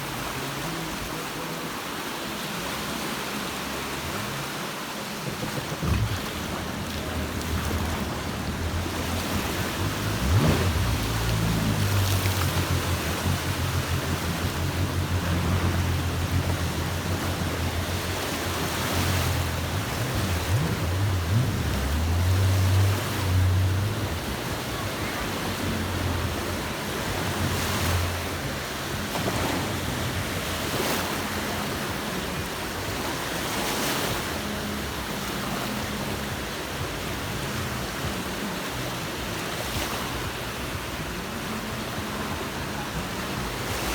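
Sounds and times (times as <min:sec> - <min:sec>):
sea waves breaking on shore: 0:00.0 - 0:43.9
low rumble: 0:05.2 - 0:30.4.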